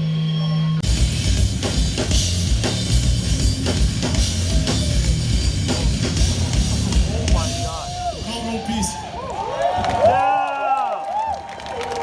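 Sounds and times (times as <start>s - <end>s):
live punk band playing: 0.8s - 8.4s.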